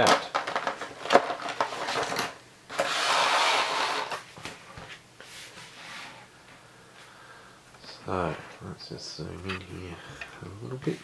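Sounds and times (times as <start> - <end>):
cardboard scraping: 1.6 - 4.2.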